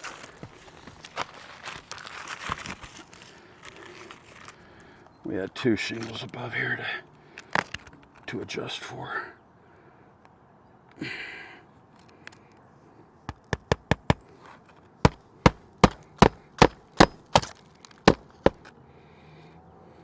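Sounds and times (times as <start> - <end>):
hammer driving nail into shingle: 13.3 - 14.3, 15.0 - 18.7.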